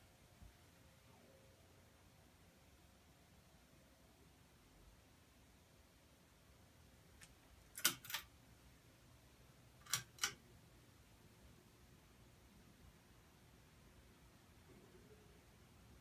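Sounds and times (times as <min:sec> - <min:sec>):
sharp clicks: 0:07.2 - 0:08.3.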